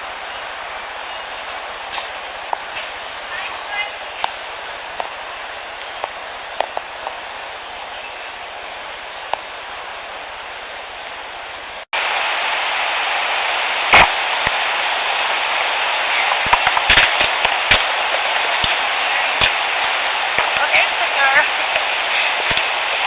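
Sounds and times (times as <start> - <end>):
steady hiss: 0.0 - 23.0
sharp clicks and pops: 1.9 - 2.9, 4.2 - 5.2, 5.8 - 7.2, 13.9 - 14.7, 16.3 - 20.8, 21.6 - 23.0.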